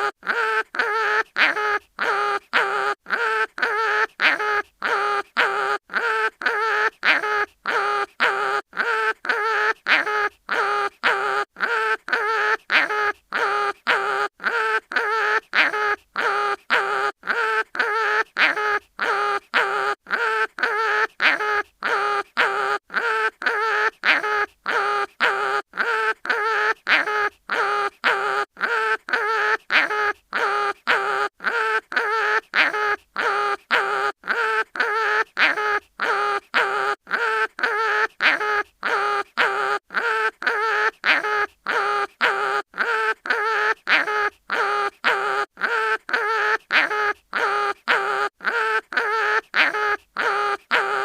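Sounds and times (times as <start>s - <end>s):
cartoon animal crying in pain: 0.0s - 51.0s.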